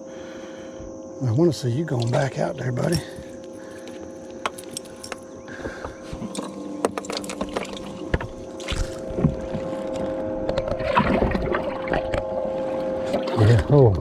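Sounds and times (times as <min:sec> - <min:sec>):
electric trolling motor humming: 0:00.0 - 0:14.0
knocks and clicks on boat: 0:04.4 - 0:12.4.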